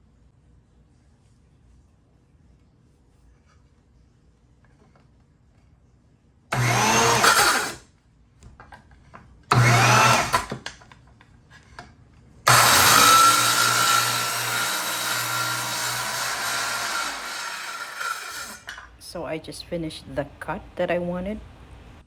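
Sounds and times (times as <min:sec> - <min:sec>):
circular saw cutting wood: 0:06.5 - 0:07.8, 0:09.5 - 0:10.6, 0:12.5 - 0:18.8.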